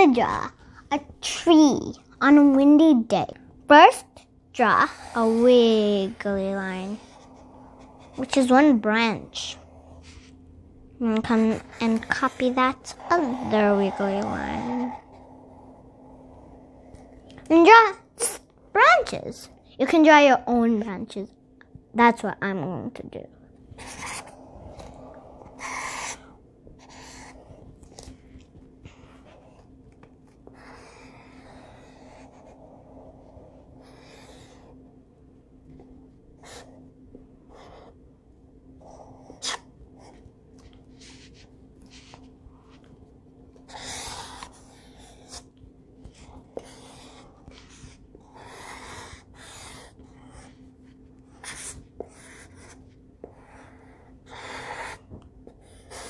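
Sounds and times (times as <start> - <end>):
pencil sketching on paper: 4.6 - 18.0, 23.8 - 28.2, 28.8 - 29.7, 30.3 - 34.9, 36.4 - 36.9, 37.5 - 38.0, 38.8 - 40.3, 43.6 - 56.0.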